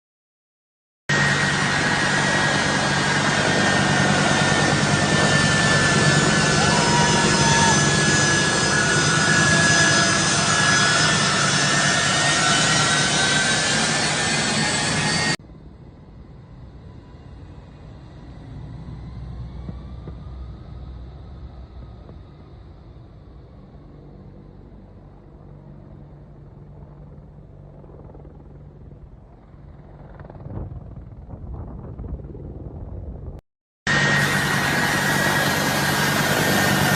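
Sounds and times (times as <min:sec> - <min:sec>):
aircraft engines droning: 0:01.1 - 0:36.9
jet engines from inside cabin: 0:15.0 - 0:24.9, 0:33.9 - 0:36.9.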